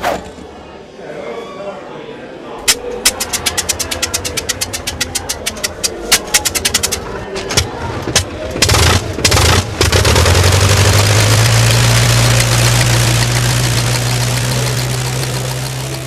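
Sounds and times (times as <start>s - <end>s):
car engine sputtering and running: 2.7s - 16.0s.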